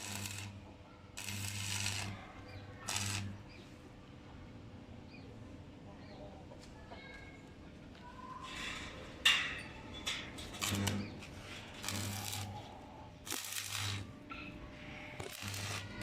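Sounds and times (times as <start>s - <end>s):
welder mains hum: 0.0s - 0.6s, 1.2s - 2.2s, 2.8s - 3.6s, 10.6s - 14.2s, 15.2s - 16.0s
welding arc crackling: 0.0s - 0.6s, 1.2s - 2.2s, 2.8s - 3.4s, 10.6s - 11.0s, 11.7s - 12.6s, 13.2s - 14.1s, 15.2s - 16.0s.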